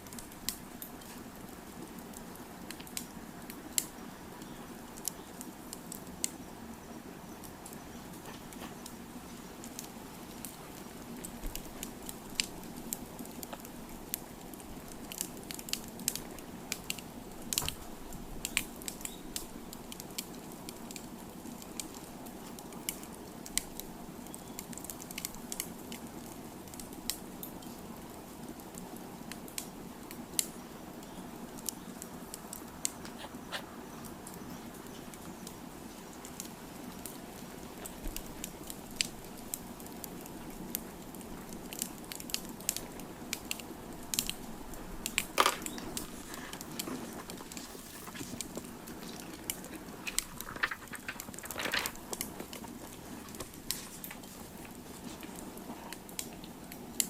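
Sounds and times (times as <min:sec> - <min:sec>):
wood fire crackling: 0:00.0 - 0:57.0
flames hissing: 0:28.2 - 0:57.0.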